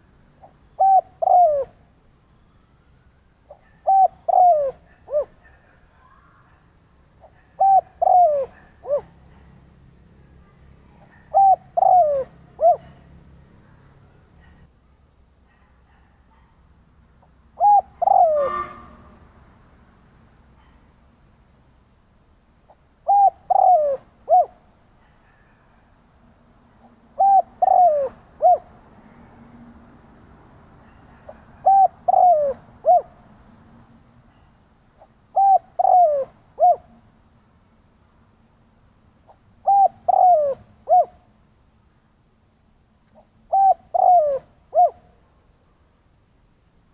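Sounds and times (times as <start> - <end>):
dove cooing: 0.4 - 1.8, 3.5 - 5.6, 7.2 - 9.2, 11.0 - 13.0, 17.6 - 18.8, 23.0 - 24.6, 27.2 - 28.7, 31.3 - 33.2, 35.4 - 36.9, 39.6 - 41.2, 43.5 - 45.1.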